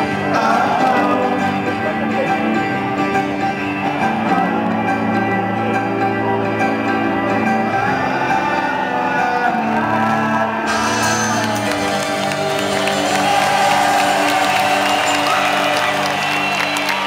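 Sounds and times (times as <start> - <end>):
live band guitar chords: 0.0 - 17.0
crowd cheering and whooping: 7.7 - 17.0.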